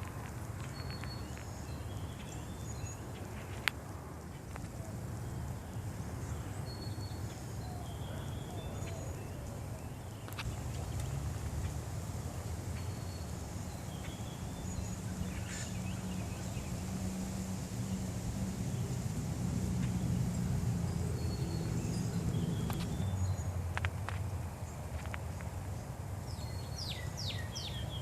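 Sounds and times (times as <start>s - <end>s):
faint bird chirps: 4.8s - 11.8s.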